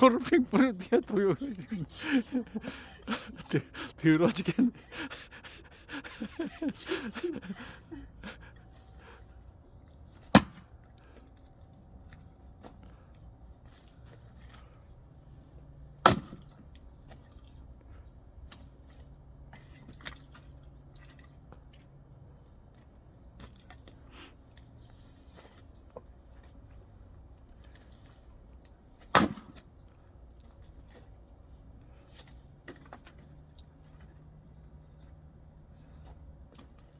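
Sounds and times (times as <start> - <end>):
axe striking firewood: 10.2 - 10.7, 16.0 - 16.5, 29.0 - 29.7.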